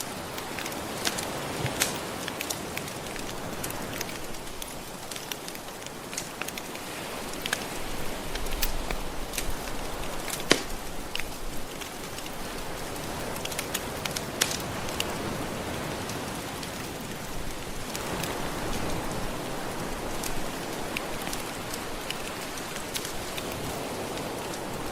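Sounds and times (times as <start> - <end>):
wood fire crackling: 0.0 - 15.2
soft ocean waves: 0.0 - 24.9.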